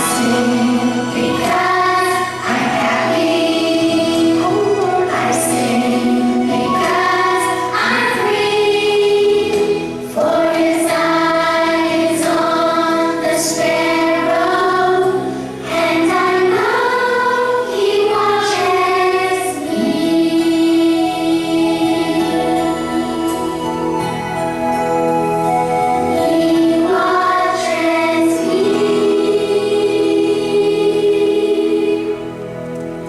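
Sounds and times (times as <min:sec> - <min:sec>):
children's choir singing: 0:00.0 - 0:33.0.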